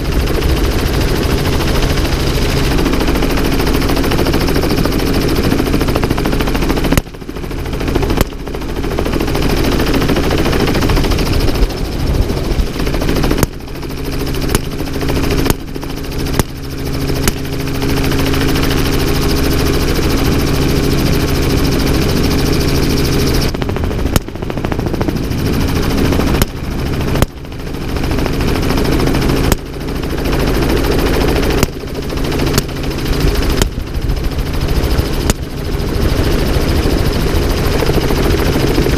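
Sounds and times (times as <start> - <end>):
helicopter running: 0.0 - 38.9.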